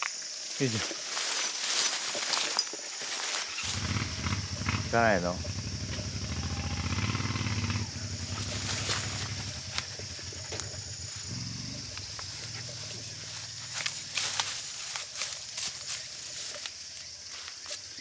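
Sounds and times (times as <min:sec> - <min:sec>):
insects trilling: 0:00.0 - 0:18.0
low pulsing rumble: 0:03.7 - 0:14.1.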